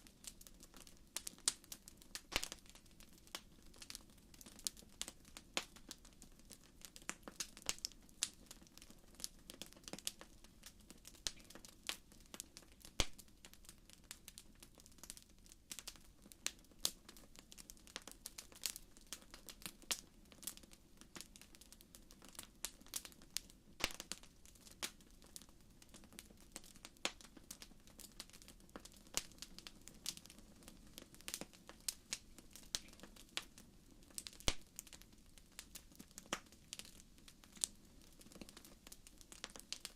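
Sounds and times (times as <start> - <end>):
wood fire crackling: 0.0 - 39.9
loud fire pops: 2.2 - 2.7, 23.8 - 24.2.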